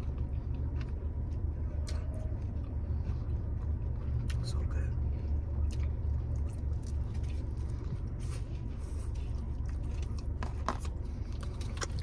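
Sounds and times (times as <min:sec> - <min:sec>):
chewing pizza: 0:00.0 - 0:12.0.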